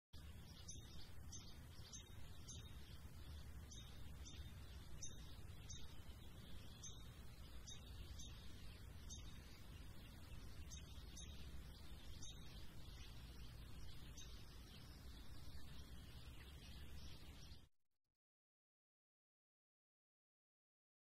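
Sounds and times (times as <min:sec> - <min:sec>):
birds chirping: 0:00.2 - 0:17.7
low steady hum: 0:00.2 - 0:17.7.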